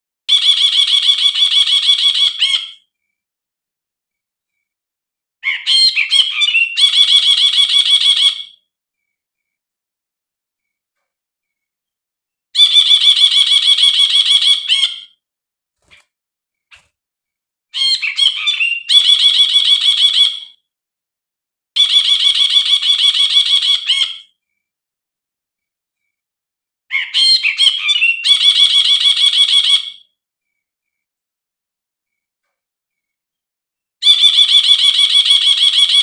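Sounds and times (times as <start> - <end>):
bird twittering: 0.3 - 2.9, 5.4 - 8.6, 17.8 - 20.6.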